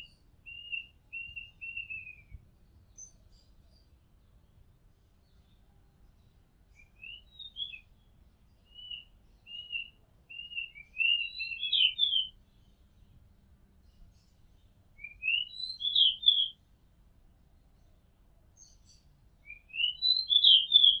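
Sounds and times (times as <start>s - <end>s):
bird singing whistled phrases: 0.0s - 2.4s, 6.8s - 7.9s, 8.7s - 12.4s, 15.0s - 16.6s, 19.4s - 21.0s.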